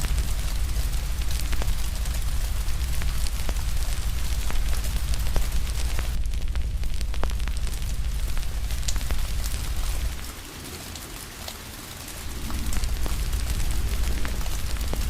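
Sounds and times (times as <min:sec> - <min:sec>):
deep low rumble: 0:00.0 - 0:10.3, 0:12.1 - 0:15.0
steady rain: 0:00.0 - 0:15.0
wood fire crackling: 0:00.0 - 0:15.0.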